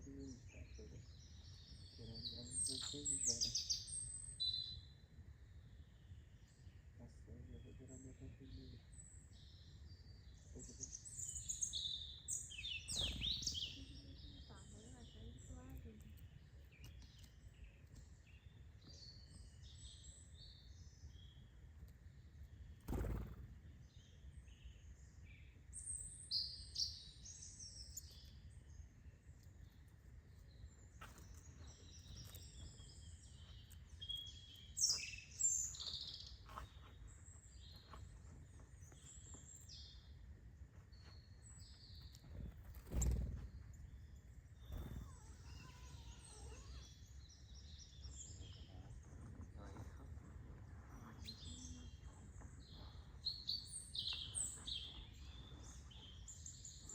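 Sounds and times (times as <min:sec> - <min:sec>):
birds chirping and calling: 0:00.0 - 0:04.9, 0:06.6 - 0:21.5, 0:30.4 - 0:40.0, 0:41.0 - 0:56.9.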